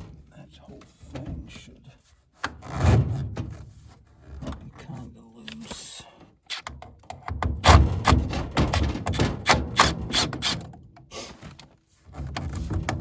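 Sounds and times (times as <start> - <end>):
sheet metal rattling: 7.6 - 10.5.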